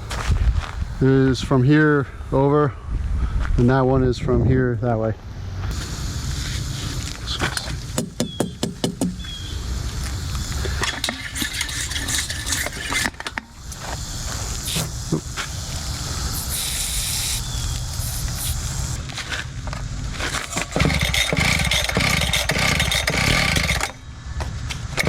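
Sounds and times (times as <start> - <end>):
engine running: 5.4 - 25.0
sharp clicks and rattling knocks: 7.5 - 9.2, 20.4 - 24.0.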